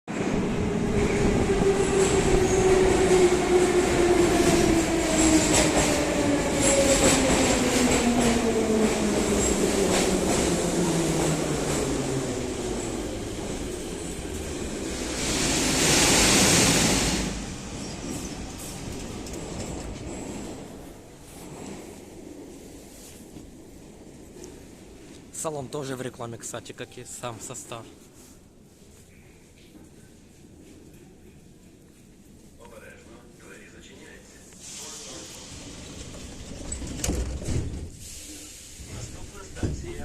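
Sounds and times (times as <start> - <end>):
train wheels rumbling on rails: 0.1 - 26.0, 34.6 - 40.0.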